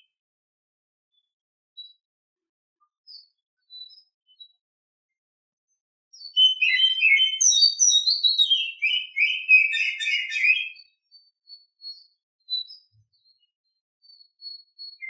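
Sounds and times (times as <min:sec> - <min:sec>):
bird singing: 0:02.8 - 0:04.6, 0:05.7 - 0:15.0.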